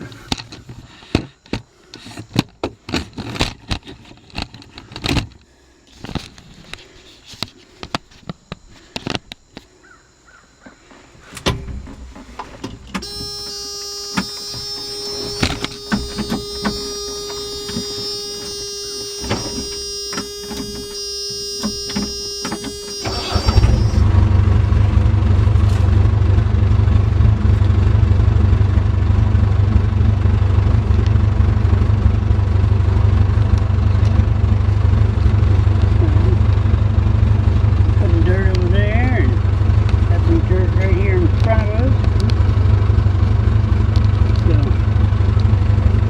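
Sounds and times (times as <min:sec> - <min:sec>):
diesel engine starting and running: 0:11.3 - 0:46.0
electronic warning tone: 0:12.9 - 0:27.2, 0:35.4 - 0:42.7.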